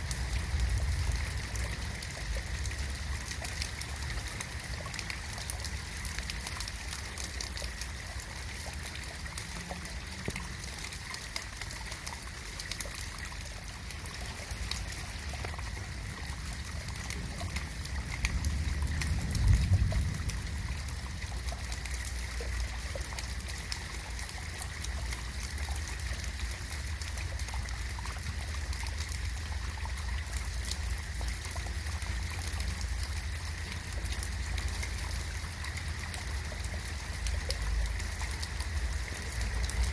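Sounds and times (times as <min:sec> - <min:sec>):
rain falling: 0:00.0 - 0:39.9
trickling water: 0:00.0 - 0:39.9
low rumble: 0:15.9 - 0:22.5.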